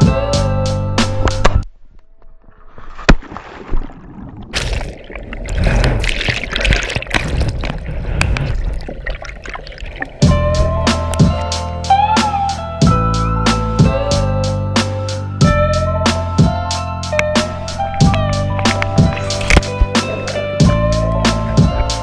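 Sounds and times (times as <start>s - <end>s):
water splashing and sloshing: 1.2s - 11.5s, 17.2s - 22.0s
loud splash: 3.1s - 10.4s.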